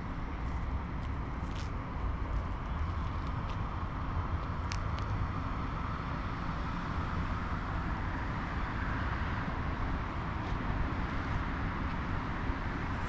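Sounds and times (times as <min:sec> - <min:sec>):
city traffic hum: 0:00.0 - 0:13.0
light ticks: 0:04.4 - 0:05.2.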